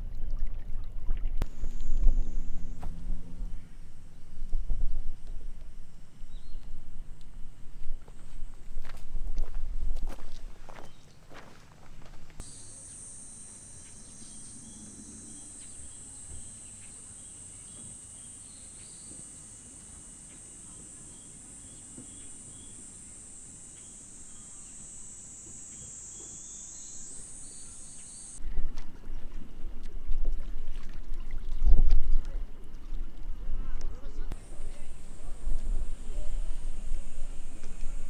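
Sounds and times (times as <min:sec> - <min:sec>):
low rumble: 0:01.1 - 0:10.0
faint chirps: 0:01.4 - 0:11.4, 0:12.4 - 0:28.5, 0:34.0 - 0:38.0
insects chorus: 0:01.4 - 0:28.4, 0:33.6 - 0:38.0.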